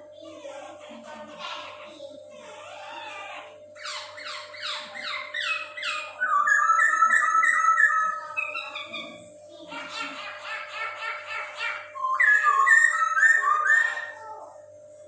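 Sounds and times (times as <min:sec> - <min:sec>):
faint steady hum: 0:00.0 - 0:15.0
bird singing whistled notes: 0:05.4 - 0:08.8, 0:12.0 - 0:14.1.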